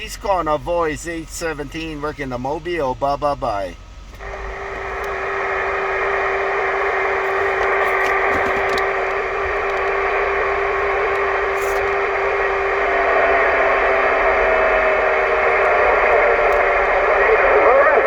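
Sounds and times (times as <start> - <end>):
radio static hiss: 3.6 - 18.0.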